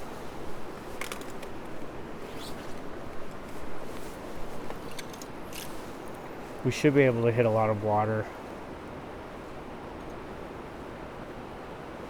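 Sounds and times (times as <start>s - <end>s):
short rustles or crunches: 0.0s - 6.6s.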